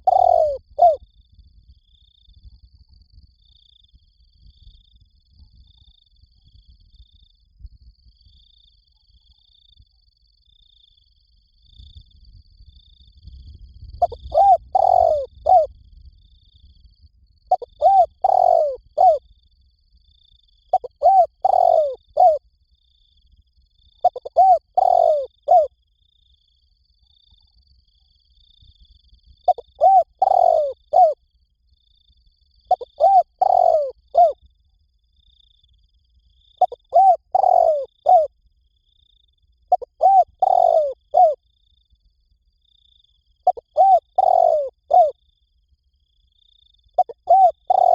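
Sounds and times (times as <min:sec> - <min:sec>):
dove cooing: 0:00.0 - 0:01.0, 0:14.0 - 0:15.7, 0:17.5 - 0:19.2, 0:20.7 - 0:22.4, 0:24.0 - 0:25.7, 0:29.5 - 0:31.2, 0:32.7 - 0:34.4, 0:36.6 - 0:38.3, 0:39.7 - 0:41.4, 0:43.5 - 0:45.2, 0:47.0 - 0:47.9.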